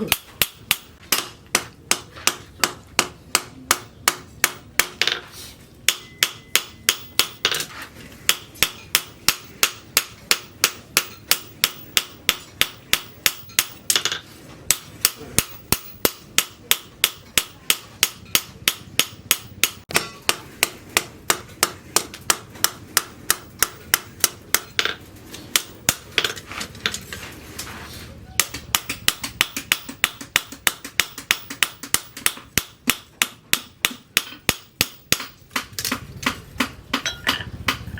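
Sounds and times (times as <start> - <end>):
hammer ringing on anvil: 5.9 - 7.5, 37.0 - 37.5.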